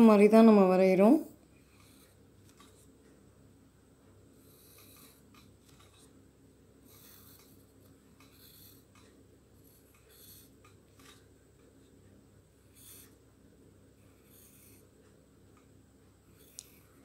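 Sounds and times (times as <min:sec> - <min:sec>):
low steady hum: 0:00.0 - 0:17.0
pencil scratching on paper: 0:06.9 - 0:08.9, 0:09.6 - 0:10.6.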